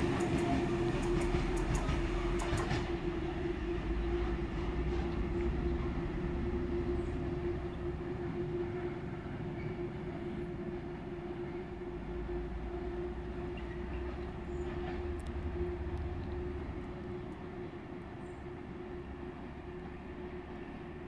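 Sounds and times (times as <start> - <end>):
wheels clicking over rail joints: 0.0 - 3.3
freight train rumble: 0.0 - 21.0.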